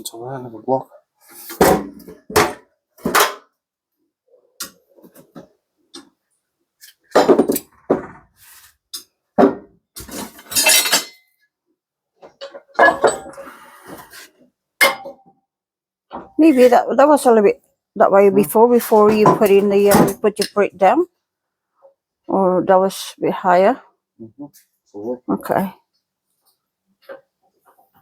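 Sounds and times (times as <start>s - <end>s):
metal parts clinking: 10.5s - 11.2s.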